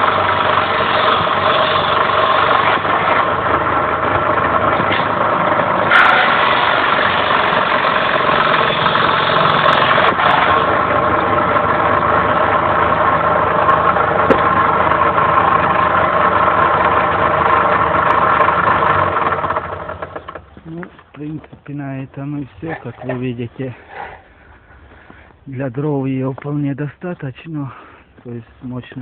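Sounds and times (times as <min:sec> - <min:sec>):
circular saw motor hum: 0:00.0 - 0:20.6.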